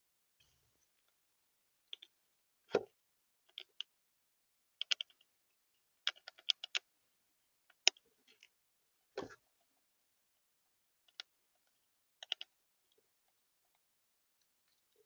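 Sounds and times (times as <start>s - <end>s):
birds pecking on a feeder: 11.1s - 12.6s.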